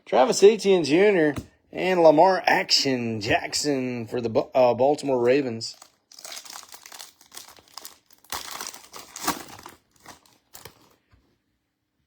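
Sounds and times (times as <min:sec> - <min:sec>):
foil wrapper crinkling: 0:05.7 - 0:11.0
foil ripping: 0:05.8 - 0:11.0.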